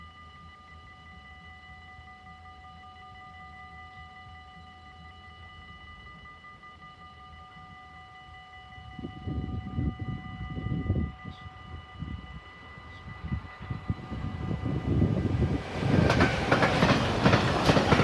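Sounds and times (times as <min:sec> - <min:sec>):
level-crossing warning bell ringing: 0:08.2 - 0:18.0
train rumble: 0:12.0 - 0:18.0.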